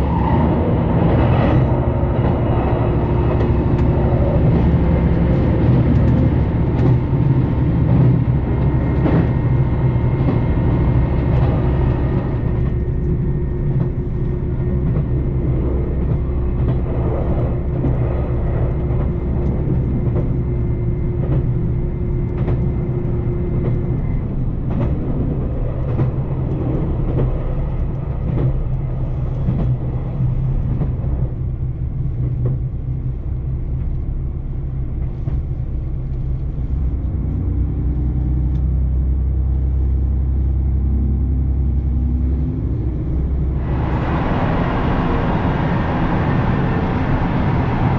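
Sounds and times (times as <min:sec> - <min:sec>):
diesel railcar engine drone: 0:00.0 - 0:47.9
wheels clicking over rail joints: 0:02.3 - 0:12.5
thin steady whine: 0:39.6 - 0:47.9.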